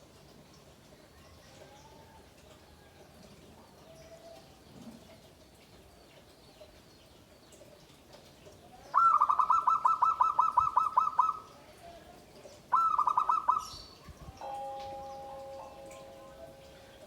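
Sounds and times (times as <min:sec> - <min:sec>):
dove calling in rapid notes: 0:08.9 - 0:11.5, 0:12.7 - 0:15.9.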